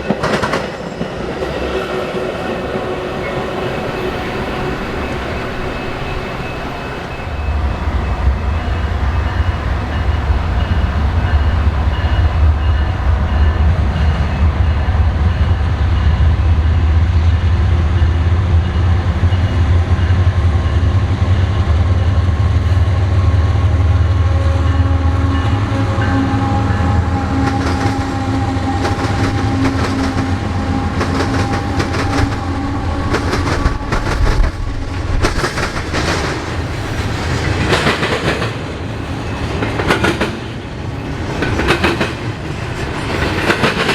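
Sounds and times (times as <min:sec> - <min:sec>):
train wheels clacking over rail joints: 0:00.0 - 0:01.7, 0:27.4 - 0:40.6, 0:41.2 - 0:43.9
train rumbling past: 0:00.0 - 0:43.9.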